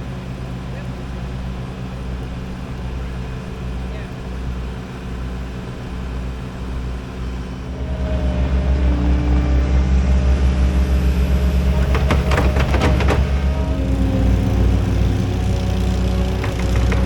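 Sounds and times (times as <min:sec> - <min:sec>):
engine running steadily: 0:00.0 - 0:17.0
sharp clattering knocks: 0:11.6 - 0:13.6, 0:15.7 - 0:17.0.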